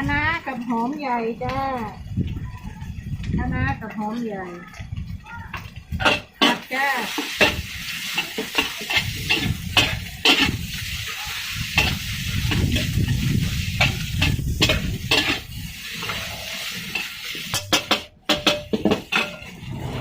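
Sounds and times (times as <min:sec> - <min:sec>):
food sizzling: 0:00.0 - 0:20.0
metal spatula scraping a wok: 0:06.0 - 0:20.0.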